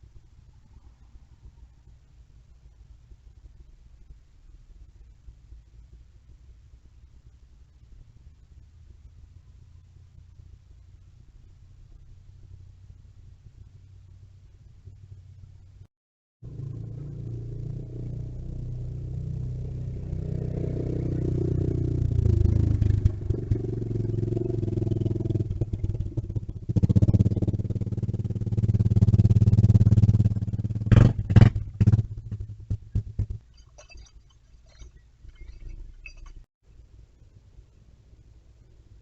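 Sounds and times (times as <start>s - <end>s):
mini bike engine passing: 16.5s - 32.1s.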